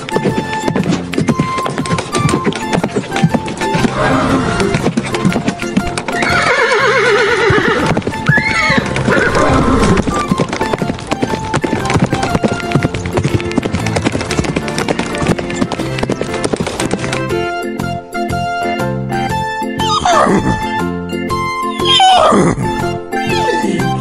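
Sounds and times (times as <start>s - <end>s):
hooves clip-clopping: 0.0s - 20.8s
background music: 0.0s - 24.0s
horse whinnying: 0.4s - 11.4s, 19.8s - 20.8s, 21.8s - 23.6s.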